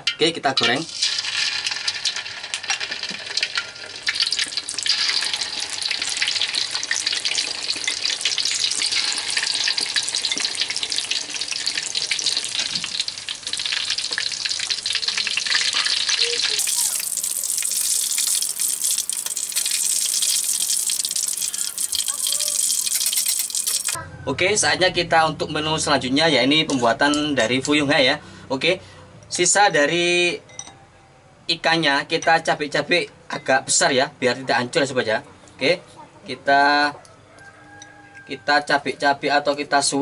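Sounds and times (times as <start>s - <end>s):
food deep-frying in hot oil: 0.0s - 24.0s.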